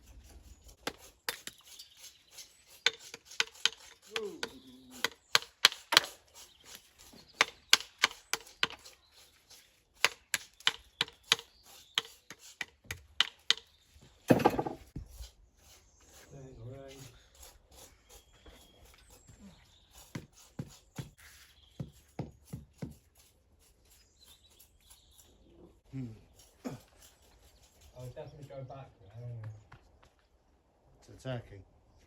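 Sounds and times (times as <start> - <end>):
tool striking stone: 2.8 - 6.2, 14.3 - 15.0, 21.8 - 23.1.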